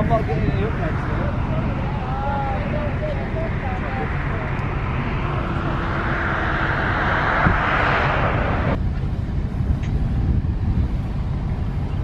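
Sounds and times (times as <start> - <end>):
vehicle road rumble: 0.0 - 12.0.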